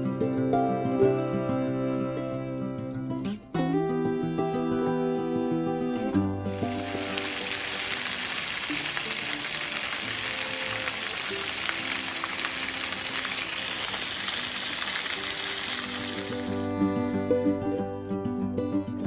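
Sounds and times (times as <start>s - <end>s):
quiet background music: 0.0s - 19.0s
rushing water of waterfall: 6.5s - 16.6s.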